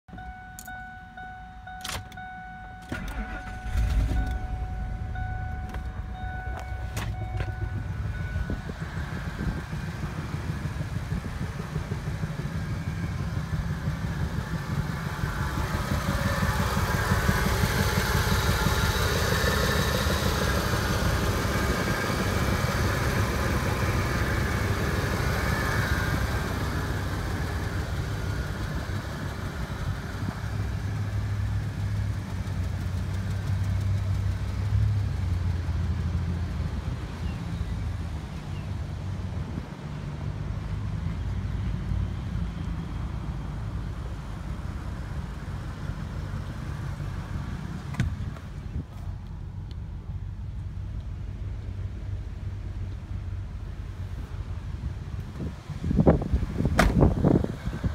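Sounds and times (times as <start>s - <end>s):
dashboard chime: 0.1s - 8.9s
car engine starting and idling: 0.1s - 57.9s.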